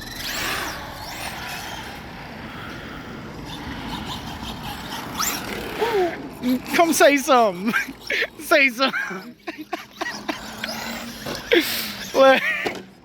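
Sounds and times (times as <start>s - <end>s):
electric motor whining: 0.0s - 12.8s.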